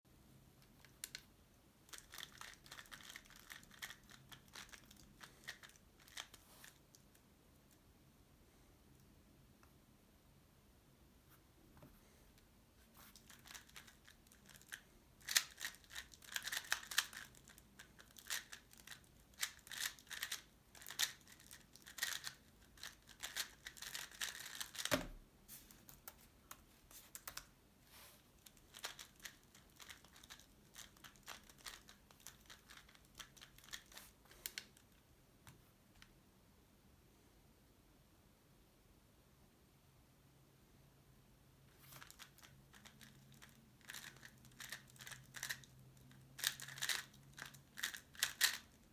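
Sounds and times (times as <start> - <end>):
puzzle cube clicking: 2.0 - 6.8, 13.2 - 25.1, 28.7 - 34.7, 46.4 - 48.7.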